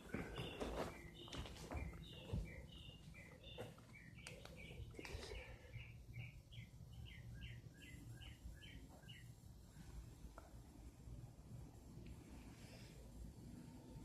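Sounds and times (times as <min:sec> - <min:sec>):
bird chirping: 0:00.0 - 0:09.8.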